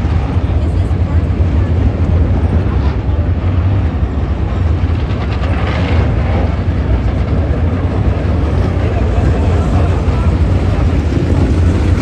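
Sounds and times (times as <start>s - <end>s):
race car engines rumbling: 0.0s - 12.0s.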